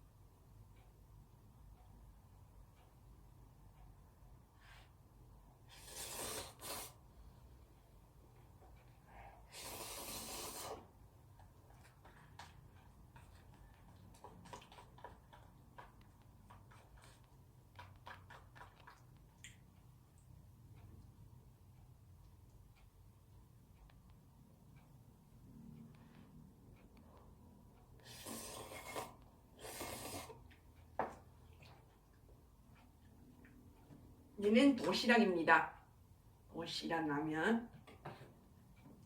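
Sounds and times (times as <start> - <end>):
noodle slurping: 5.8 - 7.0, 9.5 - 10.9, 28.0 - 30.4
eating clicks and smacks: 11.4 - 20.3.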